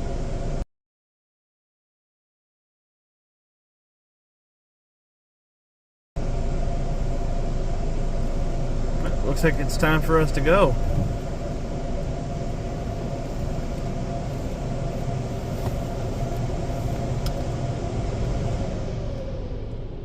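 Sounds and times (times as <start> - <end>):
car wash machinery hum: 0.0 - 0.6, 6.2 - 20.0
mid-pitched whine: 0.0 - 0.7, 6.2 - 20.0.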